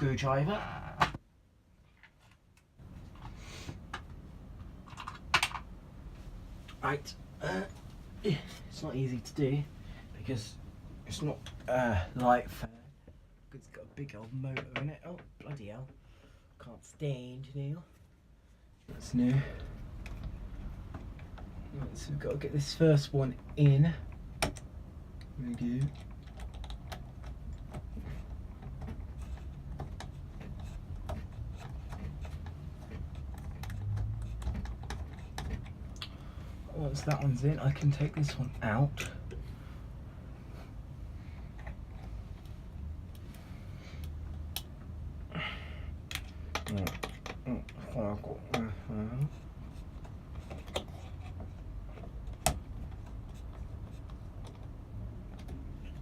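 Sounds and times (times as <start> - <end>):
hands clicking and scratching fixings: 23.2 - 39.4, 44.0 - 45.1, 46.0 - 56.0.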